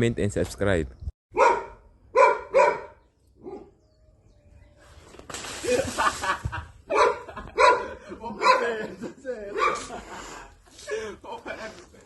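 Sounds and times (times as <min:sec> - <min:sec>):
dog barking: 0:01.3 - 0:03.8, 0:06.9 - 0:08.7, 0:09.6 - 0:09.9.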